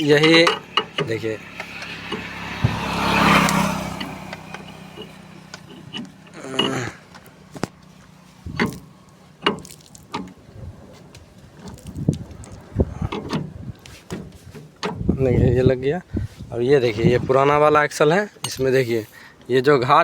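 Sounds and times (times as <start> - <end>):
metal parts knocking and clinking: 0.0 - 2.3, 18.4 - 19.0.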